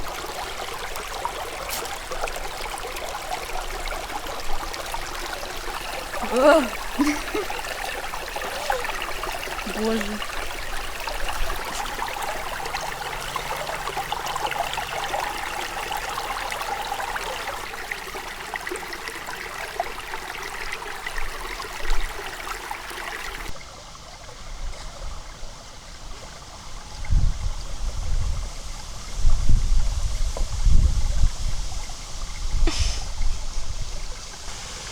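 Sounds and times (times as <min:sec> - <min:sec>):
river babbling over stones: 0:00.0 - 0:23.6.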